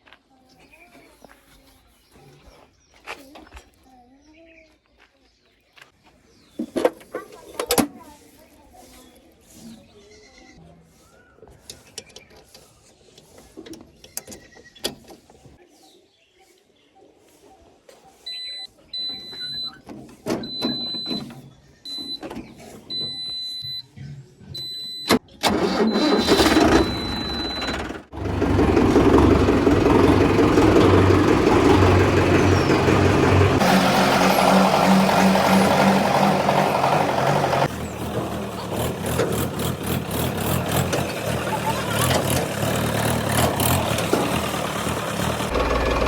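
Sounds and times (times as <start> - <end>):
tractor engine cranking and running: 24.6 - 46.0.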